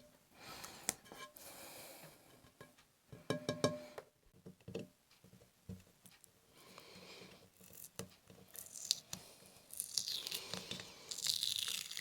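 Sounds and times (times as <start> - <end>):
tape peeling off pottery: 7.6 - 12.0.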